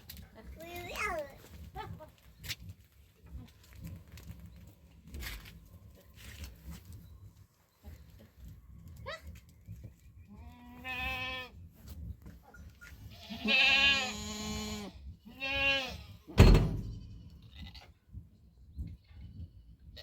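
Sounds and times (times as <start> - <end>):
goats bleating: 13.1 - 16.1
sharp thump: 16.3 - 17.2.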